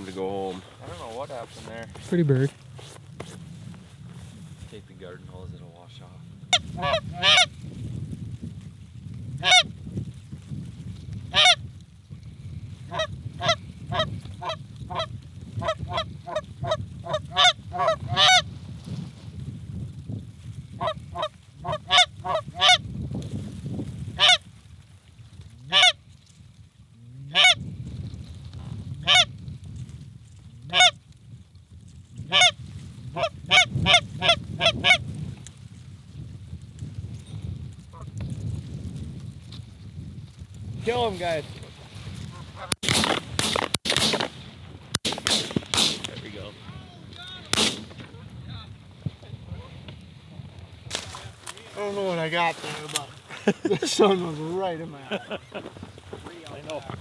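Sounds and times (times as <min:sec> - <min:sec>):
low wind rumble: 0:00.0 - 0:25.7, 0:27.6 - 0:57.0
goose honks and clucks: 0:06.5 - 0:07.5, 0:09.4 - 0:09.7, 0:11.3 - 0:11.6, 0:12.9 - 0:18.4, 0:20.8 - 0:22.8, 0:24.2 - 0:24.4, 0:25.7 - 0:26.0, 0:27.3 - 0:27.6, 0:29.0 - 0:29.3, 0:30.7 - 0:31.0, 0:32.3 - 0:32.6, 0:33.2 - 0:35.0.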